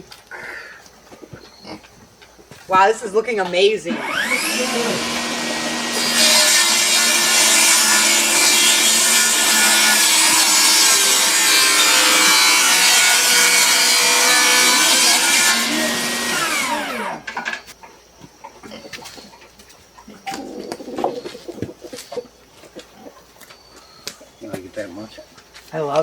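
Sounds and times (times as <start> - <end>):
power saw cutting wood: 3.9 - 17.4.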